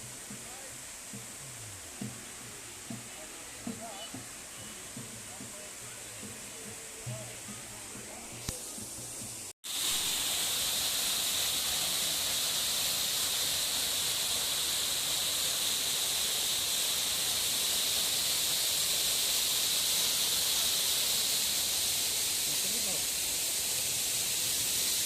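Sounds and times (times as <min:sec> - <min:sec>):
rushing water hiss: 0:00.0 - 0:25.0.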